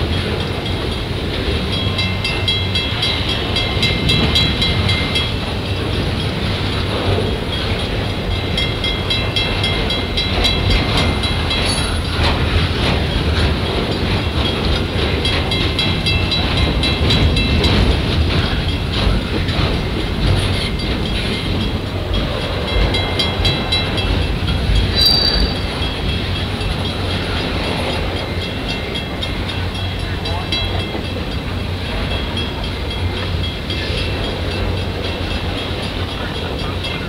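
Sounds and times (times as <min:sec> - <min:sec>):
train wheels rumbling on rail: 0:00.0 - 0:37.0
level-crossing bell ringing: 0:07.5 - 0:12.3, 0:20.5 - 0:37.0
wheel squeal: 0:24.9 - 0:25.8.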